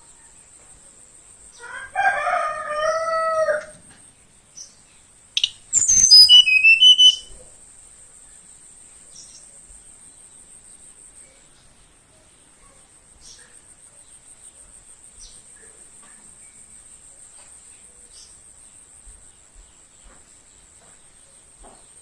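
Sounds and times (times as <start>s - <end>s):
rooster crowing: 1.6s - 3.8s
high insect buzz: 5.4s - 7.3s
bird giving high notes: 5.8s - 7.3s.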